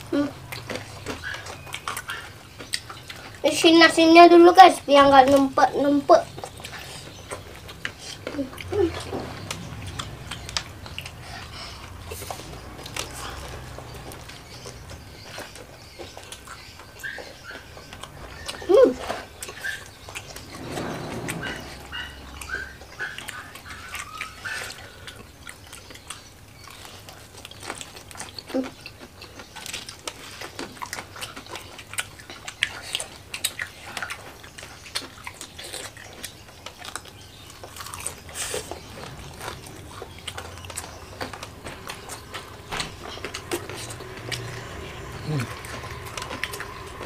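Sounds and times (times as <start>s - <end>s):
crunching of crispy food: 23.7s - 47.0s.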